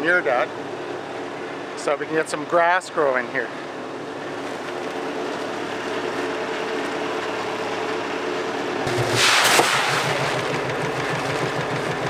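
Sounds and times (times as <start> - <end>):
loud rushing noise: 8.9 - 11.0
tractor engine running: 8.9 - 12.0.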